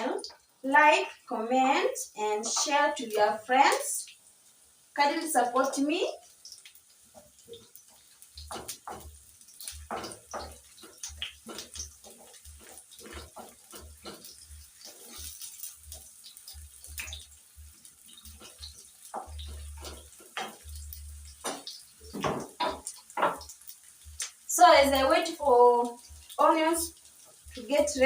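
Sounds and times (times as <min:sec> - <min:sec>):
onions frying in oil: 0:00.0 - 0:28.0
crackles and pops: 0:06.2 - 0:28.0.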